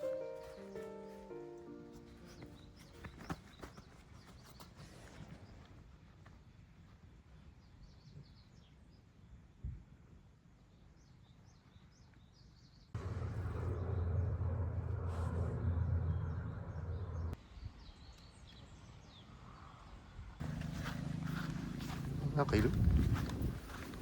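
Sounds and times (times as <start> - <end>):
small birds chirping: 0.0 - 6.7, 10.6 - 24.0
low rumble with hum: 13.0 - 17.4.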